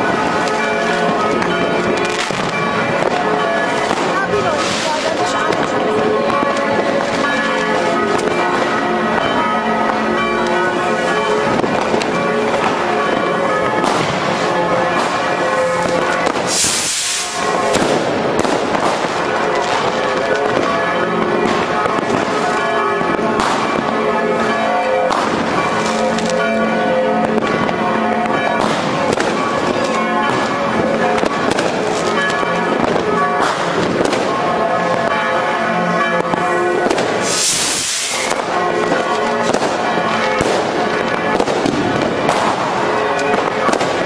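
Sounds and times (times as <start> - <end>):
church bells ringing: 0.0 - 44.0
fireworks banging and crackling: 0.0 - 44.0
loud hiss: 16.4 - 17.5, 37.2 - 38.3.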